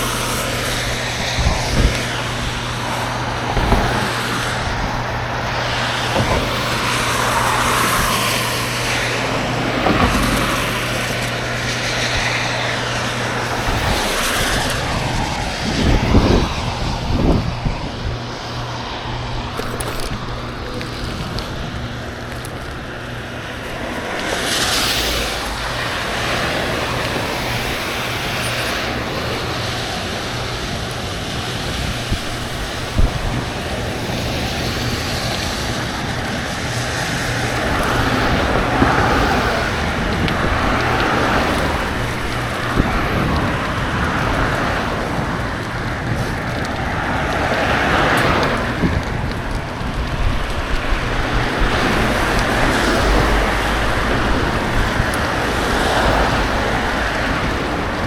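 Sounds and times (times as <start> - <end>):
traffic road noise: 0.0 - 58.0
low hum: 36.5 - 58.0.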